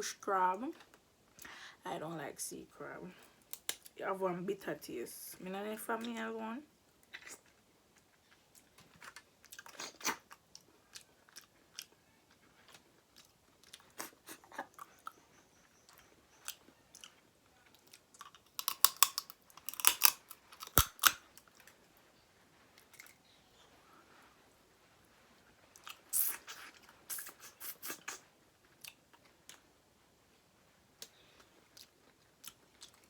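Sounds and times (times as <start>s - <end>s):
chewing and crunching food: 6.9s - 29.9s, 30.9s - 33.0s.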